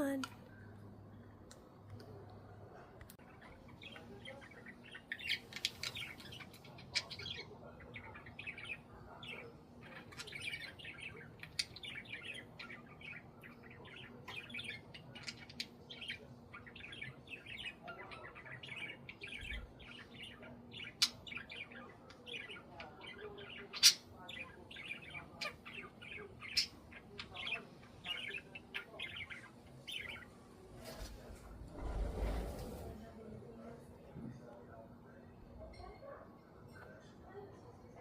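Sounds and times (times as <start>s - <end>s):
budgies chirping and squawking: 3.3s - 30.3s.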